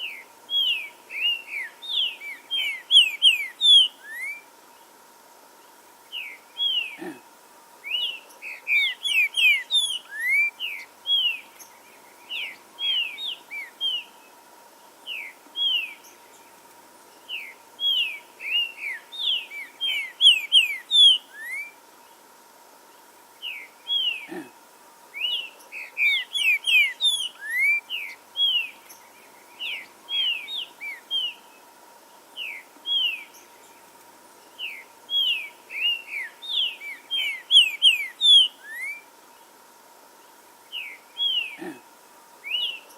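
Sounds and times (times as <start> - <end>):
bird whistled song: 0.0 - 4.5, 7.9 - 11.5, 17.3 - 21.8, 25.2 - 28.8, 32.4 - 33.4, 34.6 - 39.1, 42.4 - 42.9
faint steady tone: 0.0 - 42.9.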